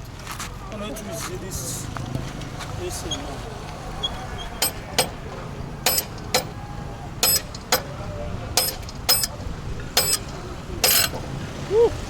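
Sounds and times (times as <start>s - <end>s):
metal tools clicking: 4.6s - 6.6s, 7.2s - 8.0s, 8.6s - 11.2s.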